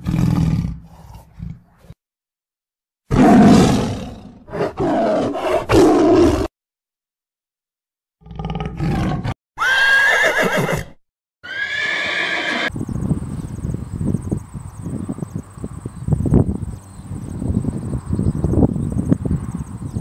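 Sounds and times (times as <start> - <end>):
tiger roaring and growling: 3.1 - 6.5, 8.2 - 9.4
horse whinnying: 8.8 - 12.7.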